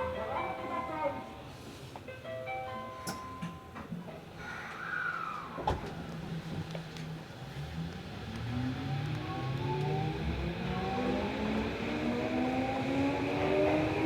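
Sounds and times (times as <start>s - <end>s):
subway train motor whine: 5.0s - 14.0s.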